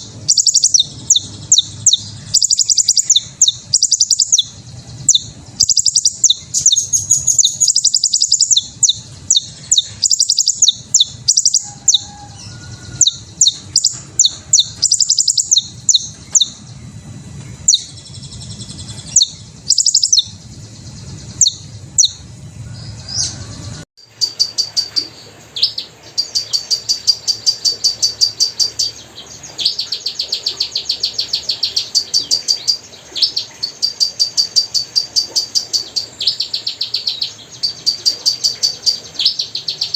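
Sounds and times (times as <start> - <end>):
hummingbirds chirping: 0.0 - 39.9.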